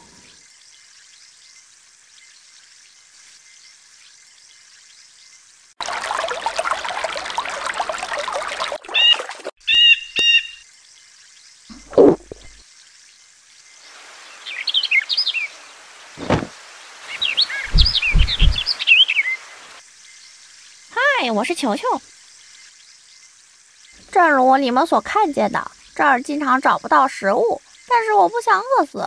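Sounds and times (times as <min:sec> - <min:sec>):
low thumps: 0:11.7 - 0:12.6, 0:17.7 - 0:18.7
birds chirping: 0:17.1 - 0:19.7.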